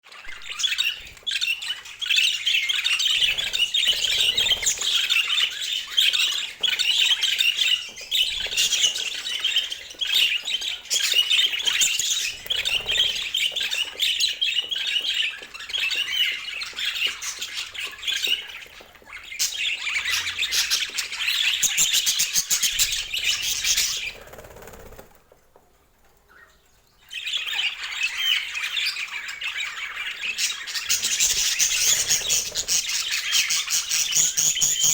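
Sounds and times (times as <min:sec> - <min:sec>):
budgerigars chattering: 0:27.2 - 0:34.9.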